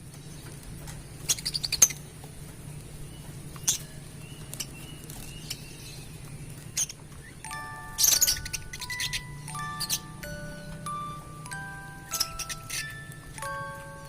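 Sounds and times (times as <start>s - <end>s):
pet birds chirping and clicking: 0.0s - 14.0s
chime-like music: 7.4s - 14.0s.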